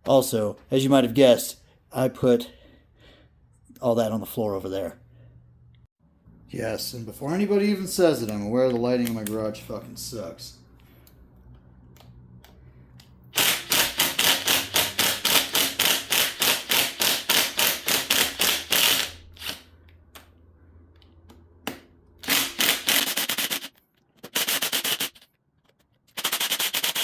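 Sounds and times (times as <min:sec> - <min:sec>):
power tool rattling in bursts: 0:13.4 - 0:19.6, 0:22.2 - 0:23.7, 0:24.3 - 0:25.2, 0:26.2 - 0:27.0.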